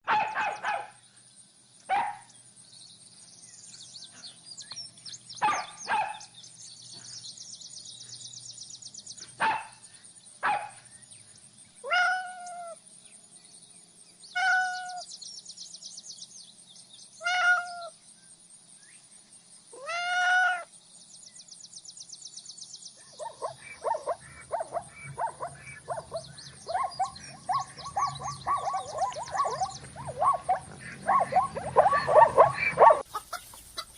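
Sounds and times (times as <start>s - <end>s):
young animals yelping and crying: 11.7s - 12.8s, 14.3s - 15.1s, 17.2s - 18.0s, 19.7s - 20.7s, 22.9s - 33.9s.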